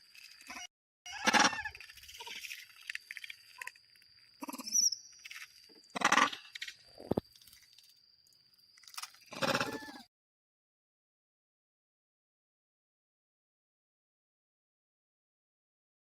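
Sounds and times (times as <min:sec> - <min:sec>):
monkeys calling: 0:06.0 - 0:06.4, 0:09.3 - 0:10.1.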